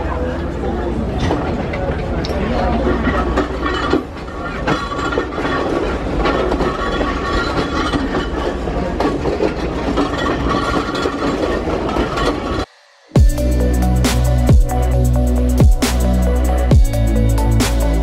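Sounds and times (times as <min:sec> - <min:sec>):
wheels clattering over track: 0:00.0 - 0:12.7
train rumbling on rails: 0:00.0 - 0:18.0.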